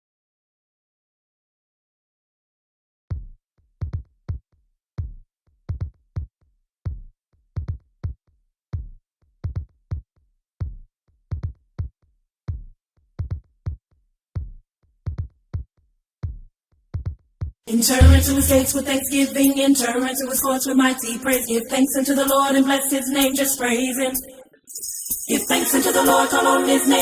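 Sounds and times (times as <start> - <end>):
electronic kick drum hits: 18.0 - 19.4.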